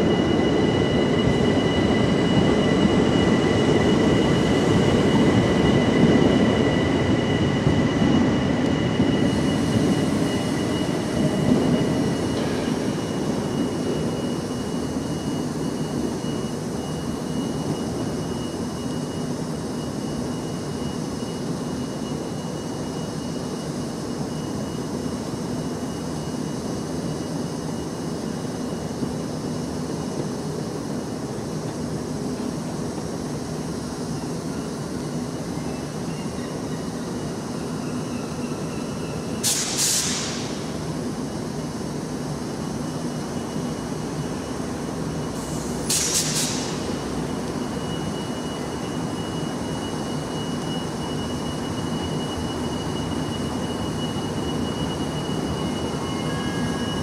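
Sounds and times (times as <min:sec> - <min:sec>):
train engines rumbling: 0:00.0 - 0:57.0
loud bursts of hiss: 0:39.4 - 0:40.6, 0:45.4 - 0:46.9.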